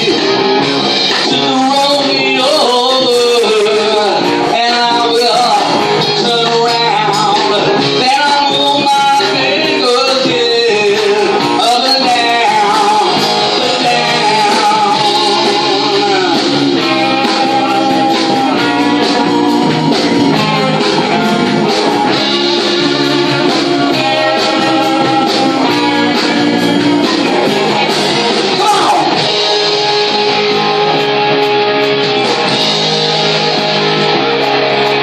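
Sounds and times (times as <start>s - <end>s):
man singing lead vocal: 0.0s - 30.3s
bass guitar: 0.0s - 35.0s
drums: 0.0s - 35.0s
electric guitar: 0.0s - 35.0s.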